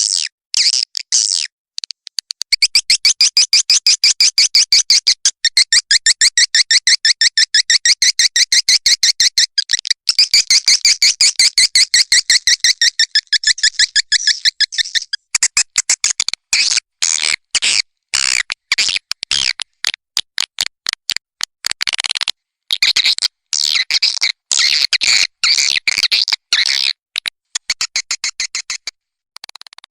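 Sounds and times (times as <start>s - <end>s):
high-pitched twittering chirps: 9.6s - 15.2s.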